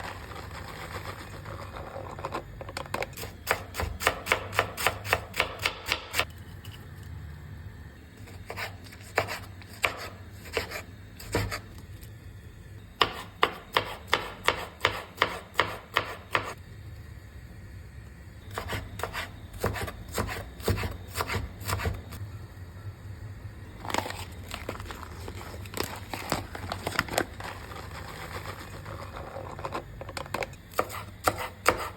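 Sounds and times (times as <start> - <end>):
knife chopping on cutting board: 13.0 - 16.5, 18.5 - 22.0, 30.7 - 31.9.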